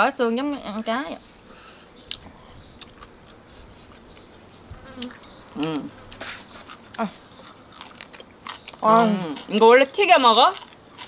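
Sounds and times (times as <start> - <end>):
insect buzzing: 1.3 - 8.0
people chewing with bone clicks: 2.0 - 11.0.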